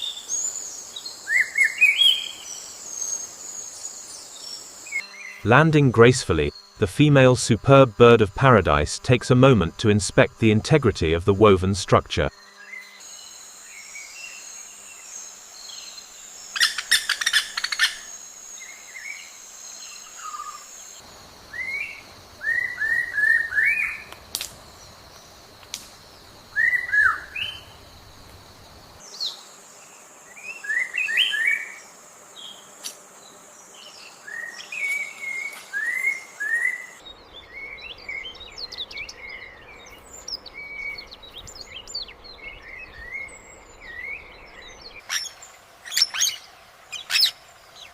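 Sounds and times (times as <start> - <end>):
steady high hiss: 0.0 - 47.9
small birds chirping: 12.0 - 28.0, 29.0 - 47.9.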